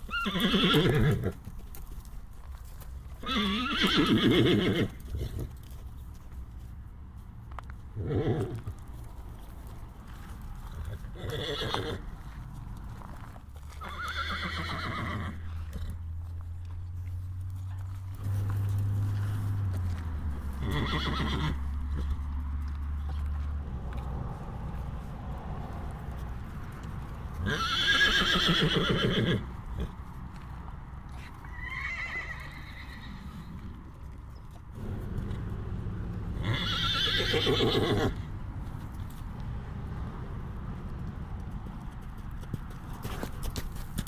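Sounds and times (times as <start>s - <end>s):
horse whinnying: 0.0s - 1.4s, 3.2s - 5.4s, 8.0s - 8.6s, 11.1s - 12.0s, 13.8s - 15.5s, 20.6s - 22.1s, 27.4s - 29.4s, 31.4s - 33.6s, 36.4s - 38.2s.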